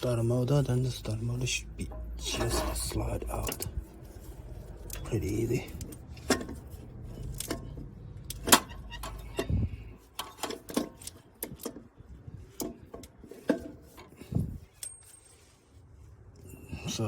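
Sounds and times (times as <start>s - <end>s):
metal clicks and knocks: 1.7s - 15.1s.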